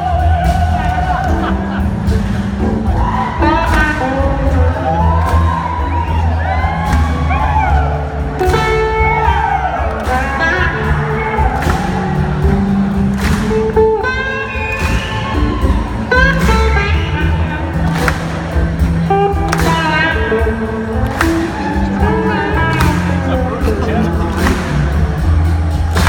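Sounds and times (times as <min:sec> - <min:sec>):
audience whooping and cheering: 0:00.0 - 0:26.0
live blues-rock band playing: 0:00.0 - 0:26.0
person singing: 0:21.7 - 0:24.9.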